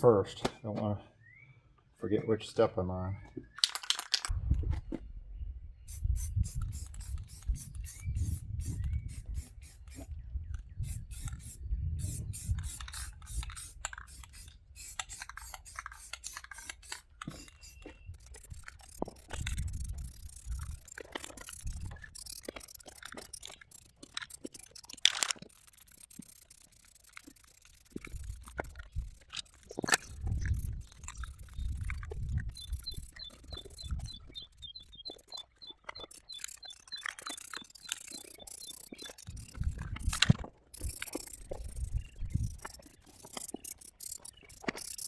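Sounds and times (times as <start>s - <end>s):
aerosol can spraying bursts: 5.9s - 10.1s, 10.8s - 23.5s.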